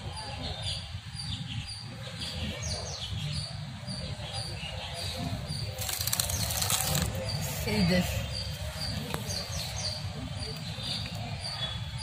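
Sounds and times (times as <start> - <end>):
birds chirping faintly: 0.0 - 12.0
rustling: 5.8 - 7.5.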